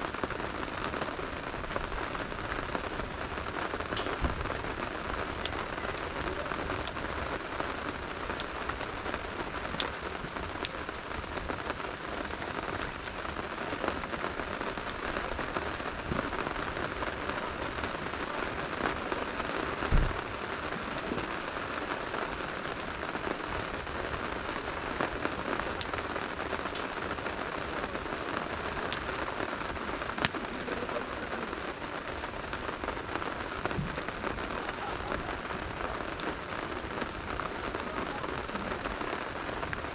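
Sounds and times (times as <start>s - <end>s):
campfire popping: 0.0s - 39.9s
steady rain falling: 0.0s - 39.9s
low thump: 19.9s - 20.2s.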